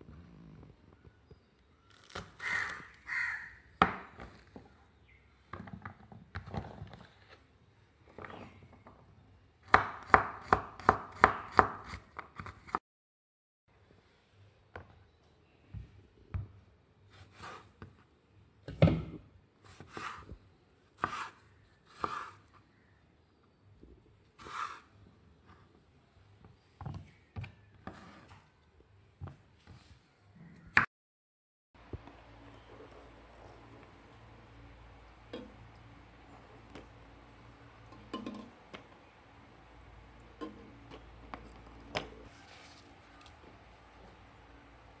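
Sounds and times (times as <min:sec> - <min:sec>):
crow cawing: 0:02.4 - 0:03.7
knife slicing onto cutting board: 0:21.0 - 0:21.4, 0:24.4 - 0:24.9.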